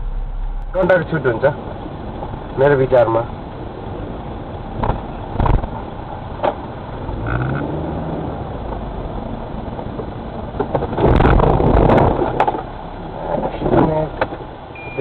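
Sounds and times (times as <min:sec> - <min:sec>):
car road and engine noise: 0:00.0 - 0:15.0
brief tone: 0:14.7 - 0:15.0.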